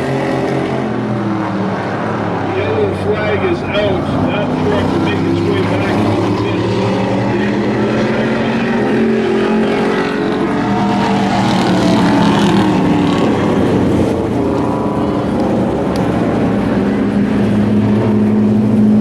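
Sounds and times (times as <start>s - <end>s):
race truck engines: 0.0s - 19.0s.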